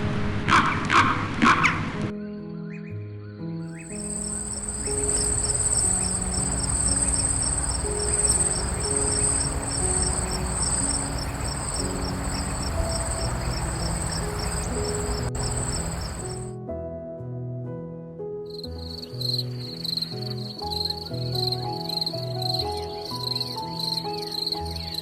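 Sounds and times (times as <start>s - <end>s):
cricket trilling: 3.8s - 16.5s, 18.5s - 25.0s.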